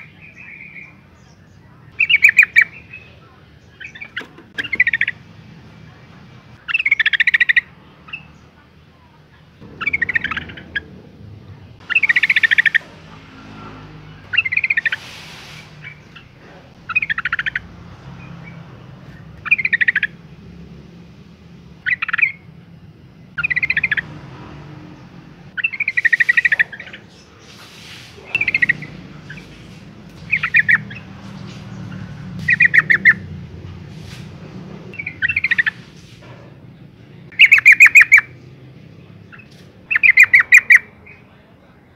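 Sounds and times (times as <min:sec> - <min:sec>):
bird chattering calls: 0:01.9 - 0:05.3, 0:06.0 - 0:08.4, 0:09.6 - 0:13.1, 0:14.2 - 0:20.4, 0:21.8 - 0:22.5, 0:23.3 - 0:24.1, 0:25.5 - 0:33.4, 0:35.0 - 0:36.1, 0:37.3 - 0:38.4, 0:39.2 - 0:41.4.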